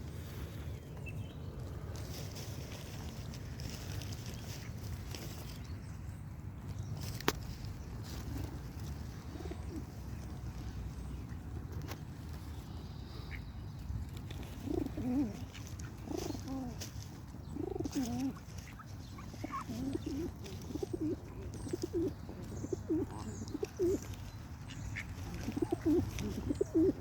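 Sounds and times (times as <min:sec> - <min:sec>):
pigeons cooing: 0:08.1 - 0:11.2, 0:14.1 - 0:24.2, 0:25.0 - 0:27.0.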